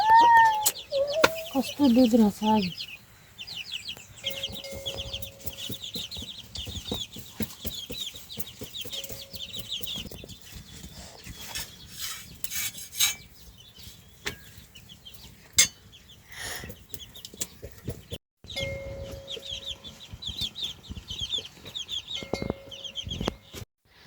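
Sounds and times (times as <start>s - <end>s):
chickens cheeping: 0.0s - 11.8s.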